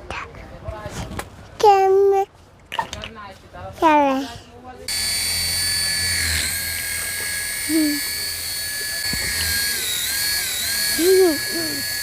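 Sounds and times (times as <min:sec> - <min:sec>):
small electric motor whining: 0:04.9 - 0:12.0.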